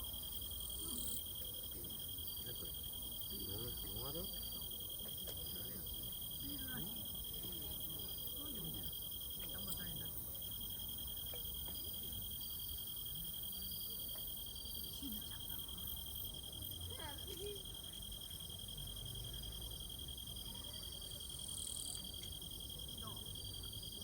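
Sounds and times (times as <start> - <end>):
faint insect chirp: 0.0 - 24.0
insects trilling: 0.0 - 24.0.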